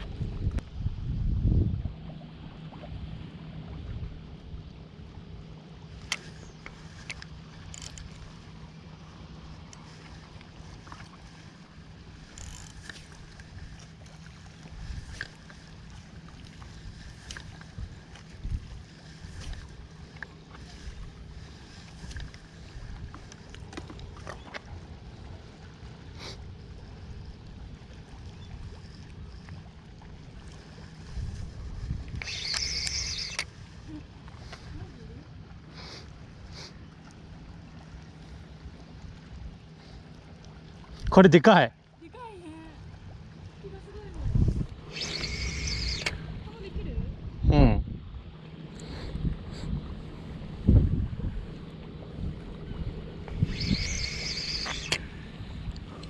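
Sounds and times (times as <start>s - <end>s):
low hum: 0.0s - 41.1s, 41.7s - 56.0s
wind: 0.0s - 56.0s
faint clicks: 6.0s - 8.3s
sharp clicks: 32.2s - 33.5s.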